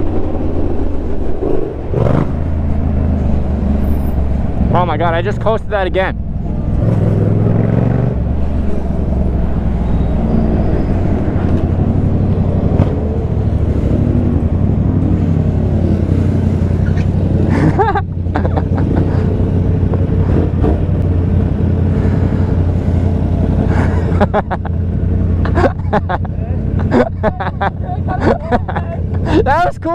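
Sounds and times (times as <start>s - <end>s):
motorcycle engines rumbling: 0.0s - 29.9s.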